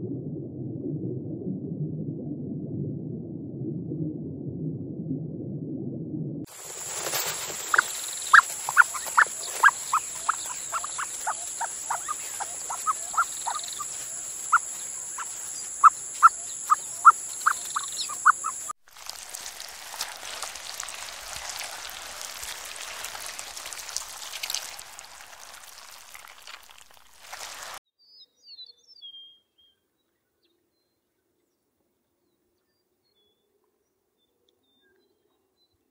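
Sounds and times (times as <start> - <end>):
faint chirps: 6.5 - 18.8
even hiss: 6.5 - 27.8
short sharp animal calls: 7.7 - 18.7.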